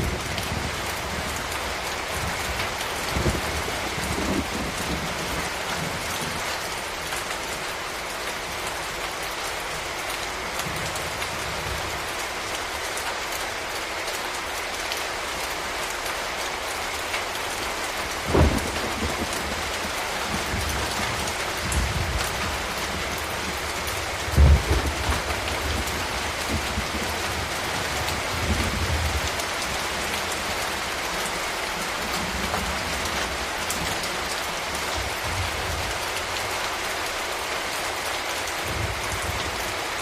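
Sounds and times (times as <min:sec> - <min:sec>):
rain falling: 0:00.0 - 0:40.0.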